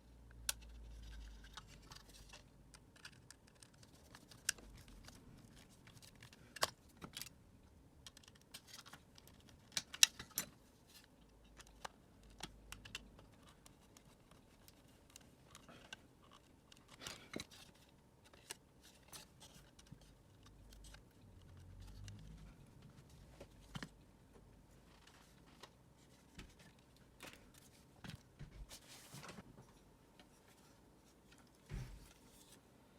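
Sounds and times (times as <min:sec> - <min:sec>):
plastic parts clicking and scraping: 0:00.5 - 0:07.4, 0:08.0 - 0:22.8.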